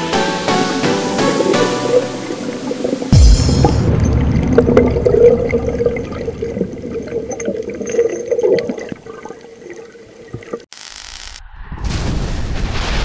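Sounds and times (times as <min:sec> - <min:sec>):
muffled underwater water rushing: 0:00.2 - 0:10.7.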